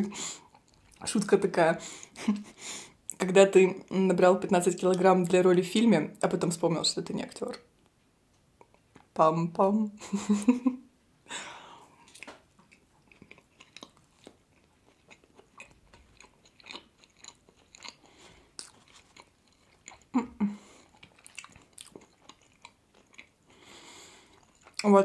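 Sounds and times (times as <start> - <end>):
soft chewing with wet mouth clicks: 0.5 - 1.0, 8.6 - 9.1, 12.0 - 20.1, 20.8 - 23.6, 24.2 - 24.9.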